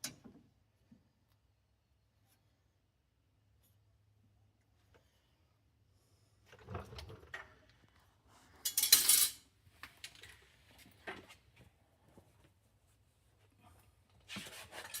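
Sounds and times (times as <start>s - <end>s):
metal tools clinking: 8.6s - 9.4s.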